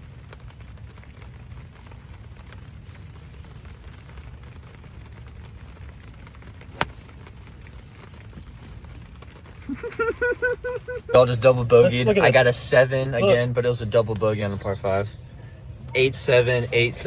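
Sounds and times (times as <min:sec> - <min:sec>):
low rumble of pouring rain: 0:00.0 - 0:17.0
golf club striking ball: 0:06.8 - 0:07.0.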